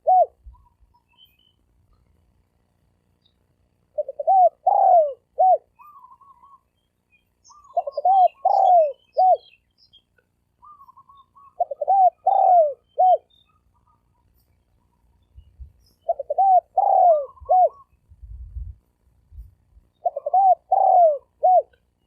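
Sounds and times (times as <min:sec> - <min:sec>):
dove cooing: 0:00.0 - 0:00.8, 0:03.9 - 0:06.7, 0:07.5 - 0:09.6, 0:10.6 - 0:14.3, 0:16.0 - 0:18.0, 0:20.0 - 0:21.8.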